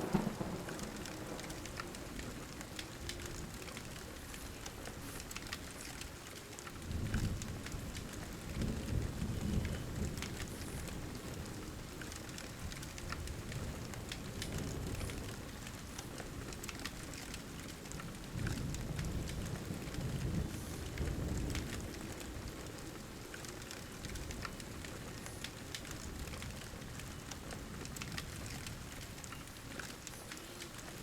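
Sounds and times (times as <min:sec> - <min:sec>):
soft thunder rumbles: 0:00.0 - 0:31.0
steady rain: 0:00.0 - 0:31.0
wood fire crackling: 0:00.0 - 0:31.0.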